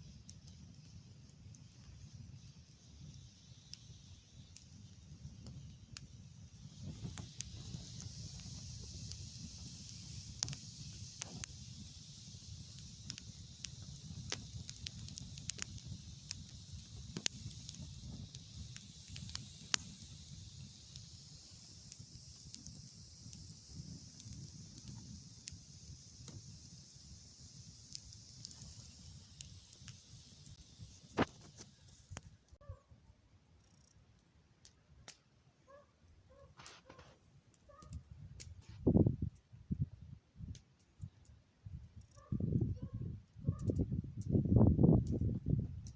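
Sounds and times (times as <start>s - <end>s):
campfire crackling: 0.0s - 32.8s, 33.5s - 45.9s.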